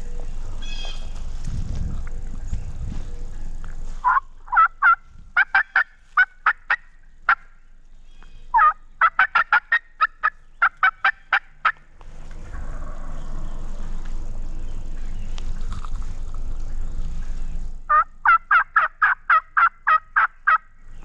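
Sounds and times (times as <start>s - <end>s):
turkey yelping: 0.6s - 1.1s, 4.0s - 7.5s, 8.2s - 11.8s, 17.9s - 20.7s.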